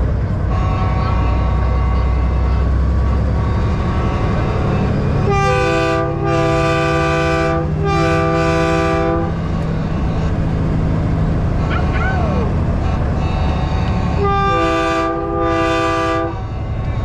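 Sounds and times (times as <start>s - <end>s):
diesel truck engine drone: 0.0s - 17.0s
road noise: 0.0s - 17.0s
train horn chord blasts: 0.4s - 9.5s, 12.8s - 16.9s.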